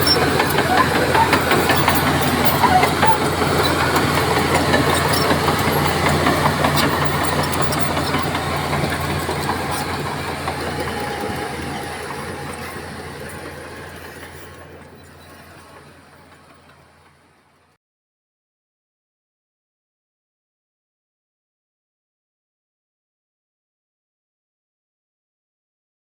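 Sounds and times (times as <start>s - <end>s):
bulldozer diesel engine drone: 0.0s - 17.7s.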